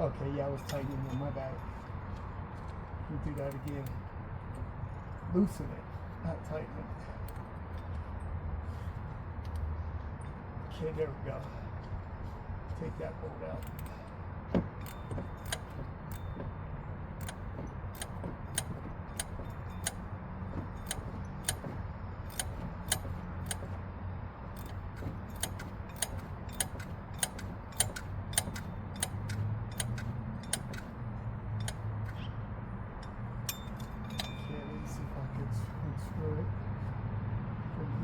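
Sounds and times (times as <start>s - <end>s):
ratchet wrench clicking: 3.3s - 4.1s, 13.5s - 16.5s, 17.1s - 23.9s, 24.5s - 32.3s, 33.0s - 34.5s.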